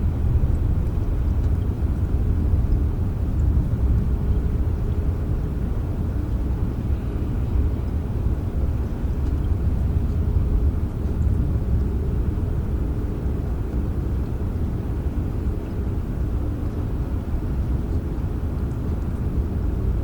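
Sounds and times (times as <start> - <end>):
rain low rumble: 0.0 - 20.0
faint raindrop ticks: 0.4 - 4.0, 17.9 - 19.4.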